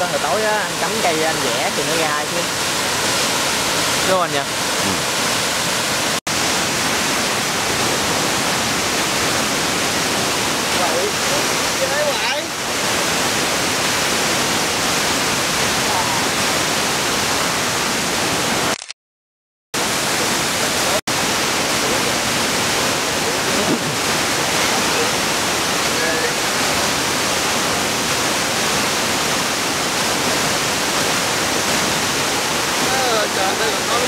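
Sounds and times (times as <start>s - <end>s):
waterfall rushing: 0.0s - 18.7s, 19.8s - 34.0s.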